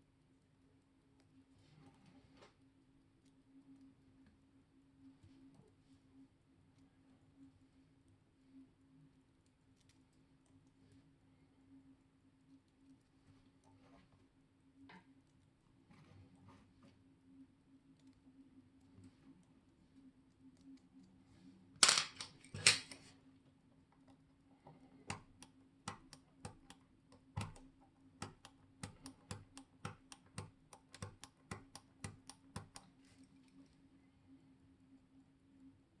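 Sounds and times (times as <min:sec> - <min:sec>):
faint steady hum: 0:00.0 - 0:36.0
wristwatch mechanism clicks: 0:25.1 - 0:32.9.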